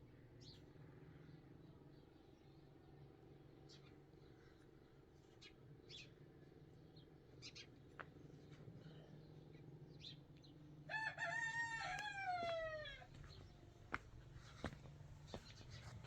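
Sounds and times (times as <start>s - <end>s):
rooster crowing: 10.9s - 13.2s.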